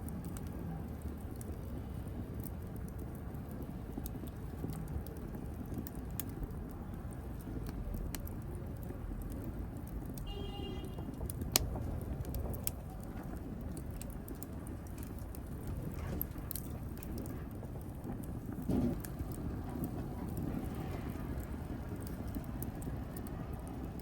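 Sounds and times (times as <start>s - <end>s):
fire crackling and snapping: 0.0s - 24.0s
fire rumbling: 0.0s - 24.0s
loud pop of fire: 9.4s - 24.0s.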